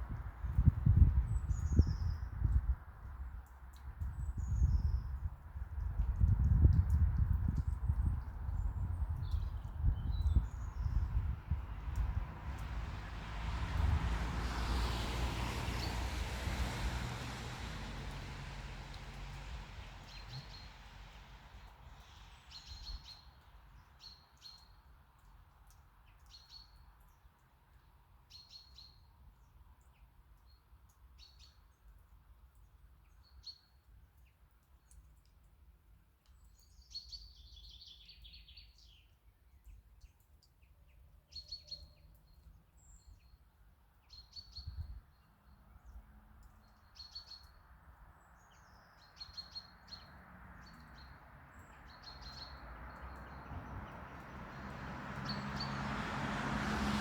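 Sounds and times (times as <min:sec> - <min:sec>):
small birds chirping: 0:36.2 - 0:47.6, 0:48.2 - 0:55.8.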